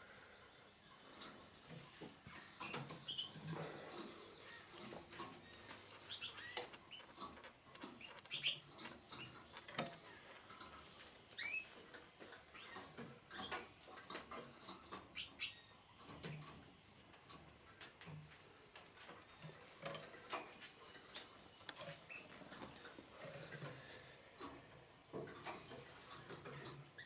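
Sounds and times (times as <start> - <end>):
canary chirping: 2.3 - 16.5, 21.8 - 22.6.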